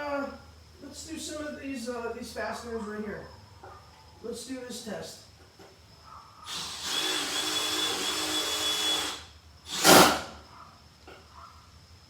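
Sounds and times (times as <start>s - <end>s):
impact driver driving fastener: 6.5s - 10.3s.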